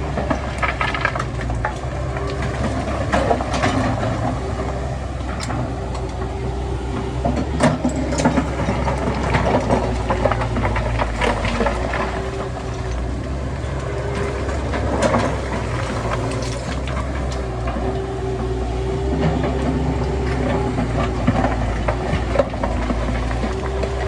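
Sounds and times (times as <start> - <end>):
diesel machinery running: 0.0 - 24.0.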